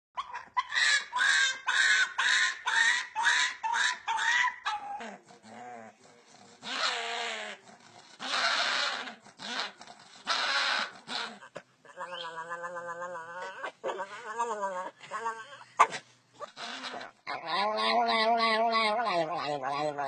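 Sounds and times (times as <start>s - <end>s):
dog high-pitched calls: 0.2s - 5.0s
dog breathy sounds: 4.6s - 20.0s.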